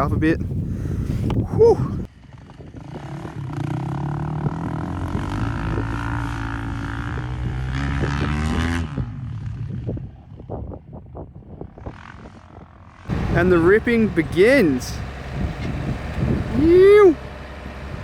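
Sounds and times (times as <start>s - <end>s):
tractor engine running: 13.1s - 18.0s.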